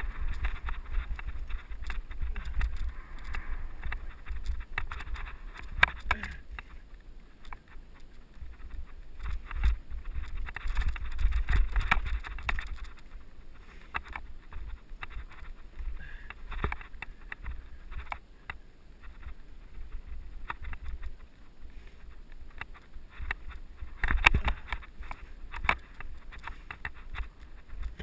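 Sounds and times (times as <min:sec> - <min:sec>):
wind buffeting microphone: 0:00.0 - 0:06.6
bike rattling over bumps: 0:00.0 - 0:28.0.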